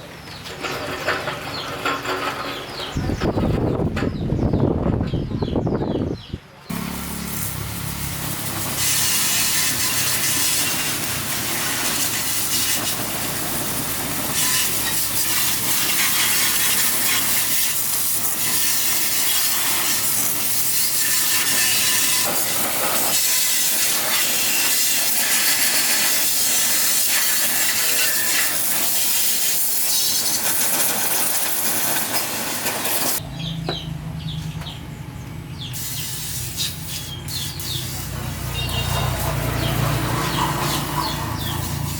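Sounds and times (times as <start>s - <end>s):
loud hissing rush: 6.7s - 33.2s, 35.7s - 38.7s.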